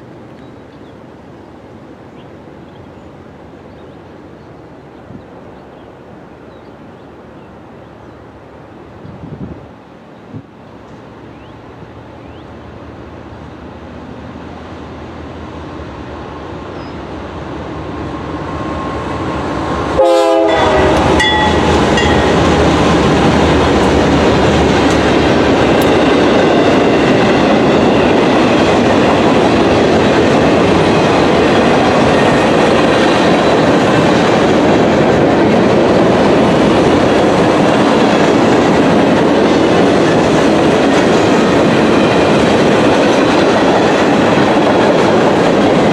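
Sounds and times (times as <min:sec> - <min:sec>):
diesel freight train passing: 0:00.0 - 0:45.9
wheels clattering on rails: 0:19.6 - 0:45.9.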